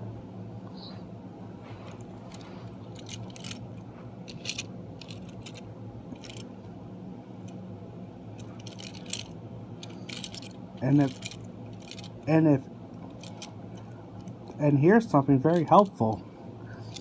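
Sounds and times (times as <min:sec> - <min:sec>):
steady low hum: 0:00.0 - 0:17.0
toy trains clicking and tapping: 0:08.6 - 0:12.1.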